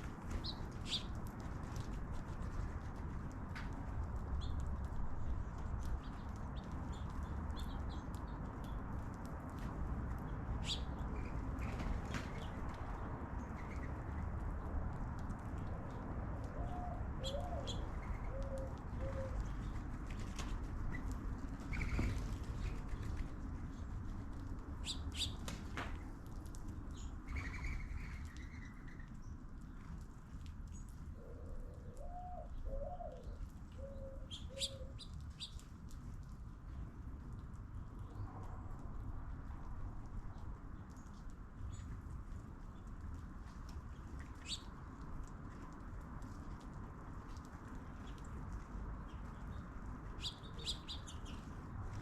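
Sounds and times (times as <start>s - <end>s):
small birds chirping: 0.3s - 1.4s, 4.3s - 9.1s, 10.1s - 14.6s, 16.5s - 19.9s, 24.8s - 25.5s, 26.8s - 30.0s, 30.6s - 35.7s, 43.8s - 44.8s, 49.0s - 52.0s
dove cooing: 16.6s - 19.4s, 31.2s - 35.0s
small bird chirping: 34.3s - 35.6s, 50.2s - 51.5s.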